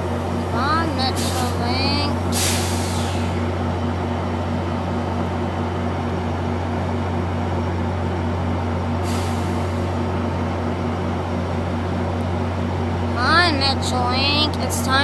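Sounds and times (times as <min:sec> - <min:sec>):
diesel locomotive idling: 0:00.0 - 0:15.0
air hiss: 0:01.2 - 0:01.6, 0:02.3 - 0:03.4.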